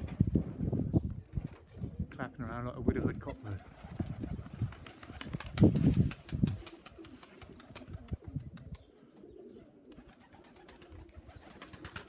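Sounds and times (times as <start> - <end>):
pigeons cooing: 3.2 - 12.0.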